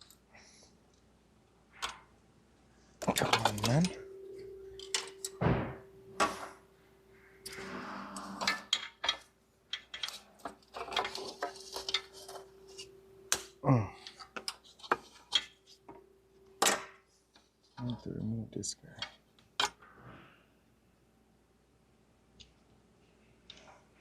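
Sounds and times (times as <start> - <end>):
faint steady hum: 0.0 - 24.0
tools and metal parts clinking: 3.0 - 5.4, 8.4 - 13.4.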